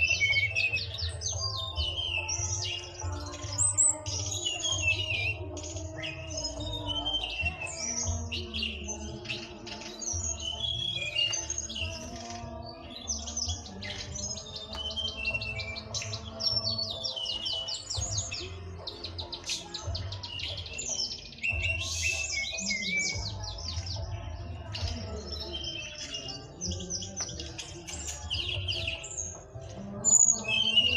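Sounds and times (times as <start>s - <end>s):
flycatcher singing chirps and trills: 0.0s - 30.9s.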